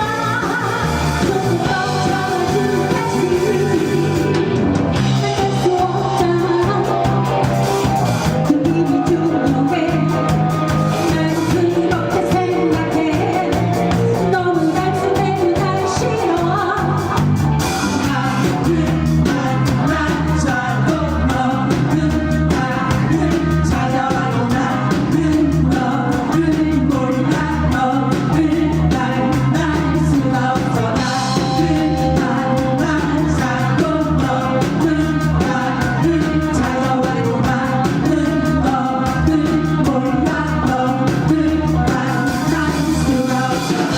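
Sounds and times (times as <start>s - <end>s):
person singing: 0.0s - 43.9s
rock band playing: 0.0s - 43.9s.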